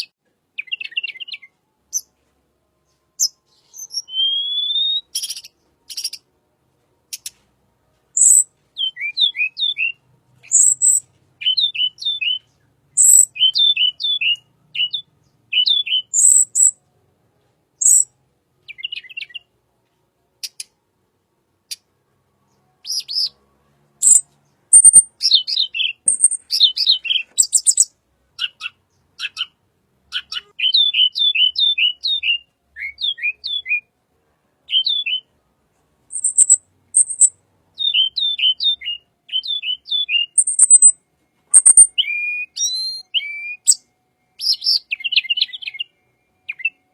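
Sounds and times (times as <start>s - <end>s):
bird chirping: 0.0s - 2.2s, 2.8s - 6.3s, 7.1s - 7.4s, 8.1s - 16.9s, 17.8s - 19.5s, 21.6s - 33.9s, 34.6s - 35.3s, 36.1s - 46.9s
sharp high bird ticks: 36.1s - 37.3s, 40.4s - 40.9s, 41.6s - 41.9s.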